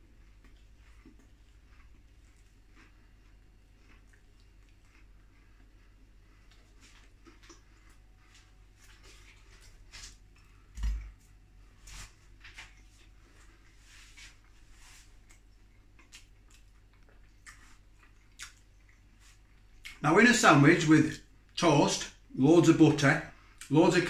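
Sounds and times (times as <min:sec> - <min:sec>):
wet chewing and lip smacks: 0:00.0 - 0:11.3, 0:14.4 - 0:20.0.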